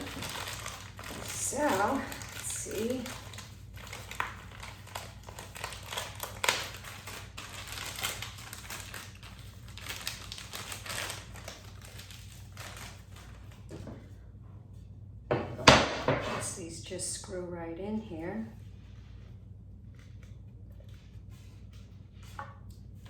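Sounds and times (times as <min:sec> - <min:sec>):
plastic packaging crinkling: 0:00.0 - 0:13.8.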